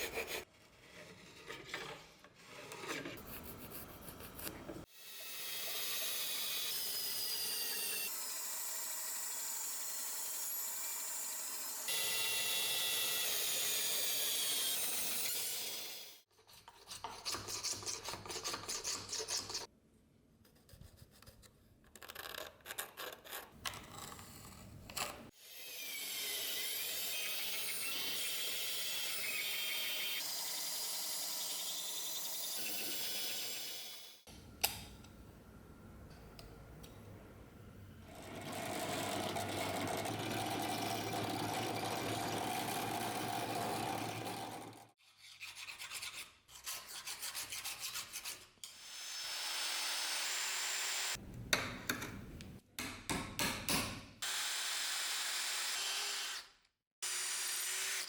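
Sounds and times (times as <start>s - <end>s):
rubbing and filing: 0.0s - 1.6s, 2.4s - 4.7s, 45.0s - 48.6s.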